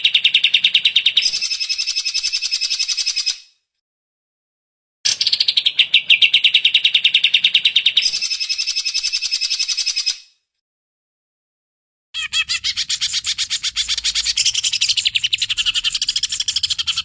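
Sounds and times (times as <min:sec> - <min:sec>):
bird singing rapid trills: 0:12.2 - 0:17.0.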